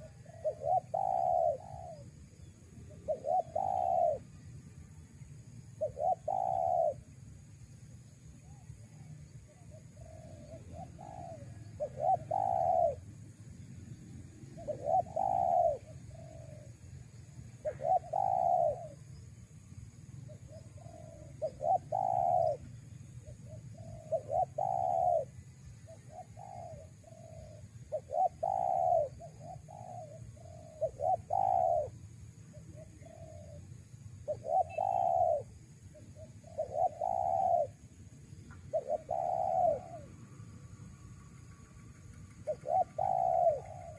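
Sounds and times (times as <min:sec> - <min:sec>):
dove cooing: 0:00.0 - 0:02.2, 0:02.9 - 0:04.4, 0:05.8 - 0:07.1, 0:08.5 - 0:13.1, 0:14.5 - 0:16.8, 0:17.6 - 0:19.1, 0:20.3 - 0:37.9, 0:38.5 - 0:40.2, 0:42.4 - 0:43.9.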